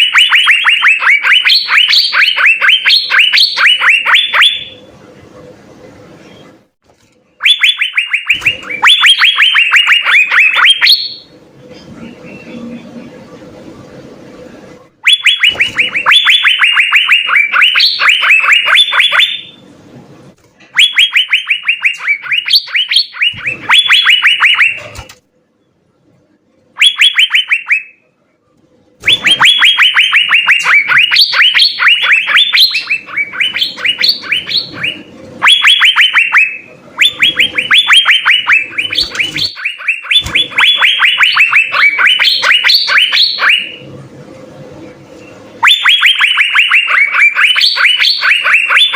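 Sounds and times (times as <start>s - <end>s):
faint low hum: 0.0s - 48.9s
bird whistled song: 7.4s - 11.3s, 15.0s - 19.6s, 20.8s - 25.0s, 29.0s - 43.8s, 45.2s - 48.9s.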